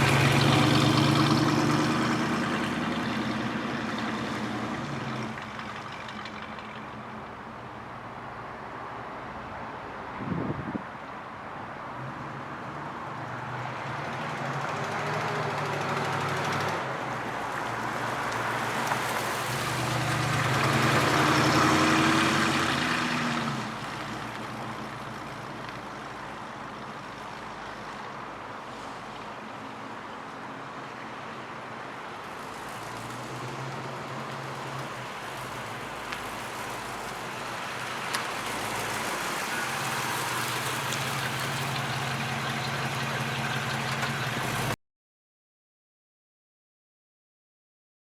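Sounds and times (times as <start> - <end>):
truck engine running: 0.0 - 8.0, 38.3 - 44.8.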